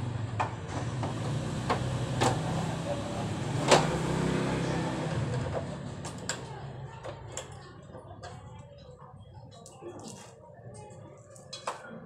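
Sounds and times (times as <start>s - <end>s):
vehicle engine running: 0.0s - 6.8s.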